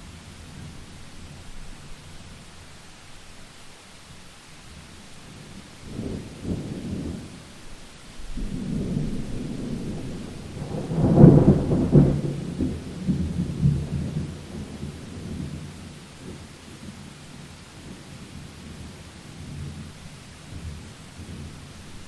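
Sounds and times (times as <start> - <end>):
steady rain: 0.0 - 22.0
rolling thunder: 8.2 - 16.4.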